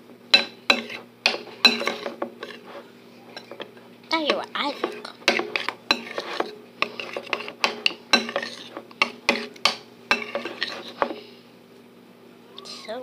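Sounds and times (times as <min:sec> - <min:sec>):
utensil clinking against bowl: 0:00.3 - 0:02.7, 0:03.3 - 0:11.2.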